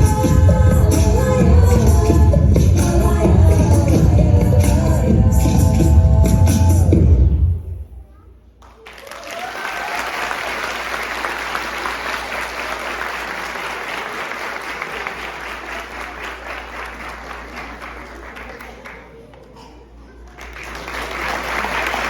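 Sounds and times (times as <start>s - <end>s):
audience applauding: 8.6s - 19.3s, 20.2s - 22.0s.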